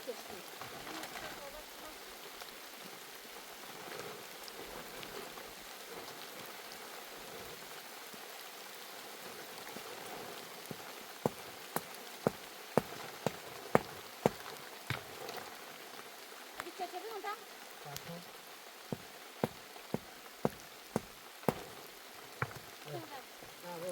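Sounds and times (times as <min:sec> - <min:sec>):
steady rain: 0:00.0 - 0:23.9
sharp knocks: 0:11.2 - 0:15.2, 0:18.9 - 0:21.8, 0:22.4 - 0:22.7.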